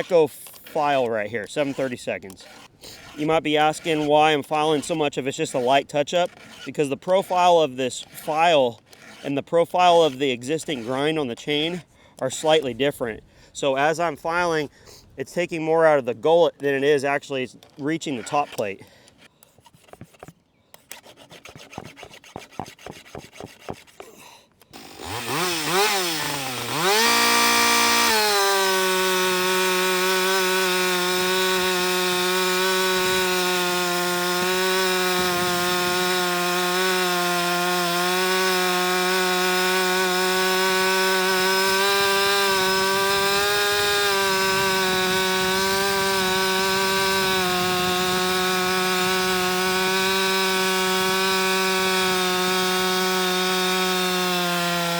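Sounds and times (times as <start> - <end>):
chainsaw revving and cutting wood: 0.0 - 12.6, 24.7 - 54.9
file scraping chainsaw chain: 0.0 - 12.8, 16.5 - 54.9.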